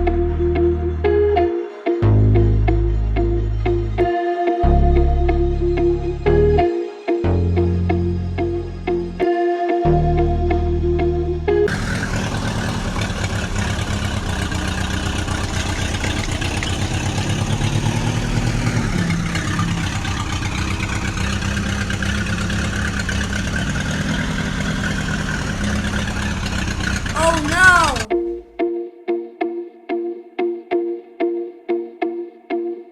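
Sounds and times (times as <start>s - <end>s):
tractor engine running: 11.7s - 27.2s.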